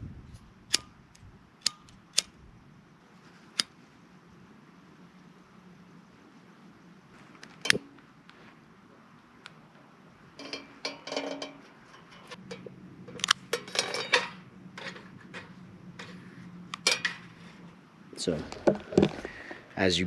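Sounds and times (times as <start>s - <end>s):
twigs clinking in metal fire pit: 1.6s - 2.3s, 7.2s - 8.5s, 9.4s - 19.8s.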